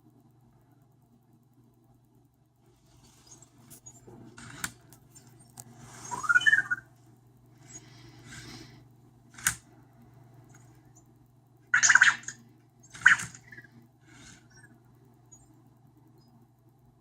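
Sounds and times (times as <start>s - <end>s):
rising electronic chirp: 6.0s - 6.9s
sharp mechanical clicks: 9.3s - 9.7s.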